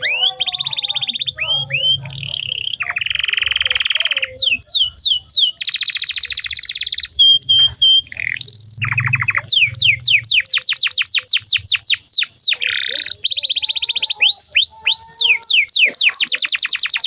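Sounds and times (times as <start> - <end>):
canary singing trills and whistles: 0.0 - 17.0.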